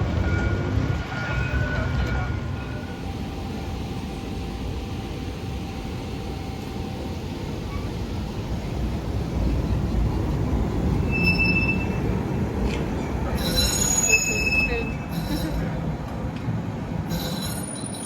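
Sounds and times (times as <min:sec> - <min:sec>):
tram wheels rumbling on rail: 0:00.0 - 0:18.0
high wheel squeal: 0:11.0 - 0:12.1, 0:13.3 - 0:15.7, 0:17.1 - 0:18.0.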